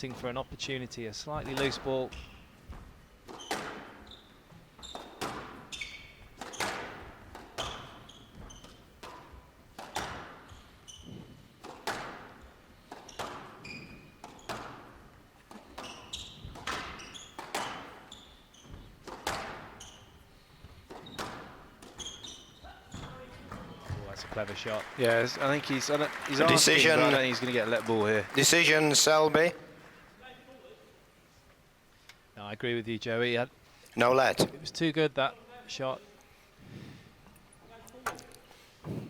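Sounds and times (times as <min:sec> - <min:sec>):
shoes squeaking on court: 0:01.5 - 0:12.1, 0:13.0 - 0:24.0
squash ball hitting rackets and walls: 0:03.3 - 0:04.1, 0:04.8 - 0:23.7.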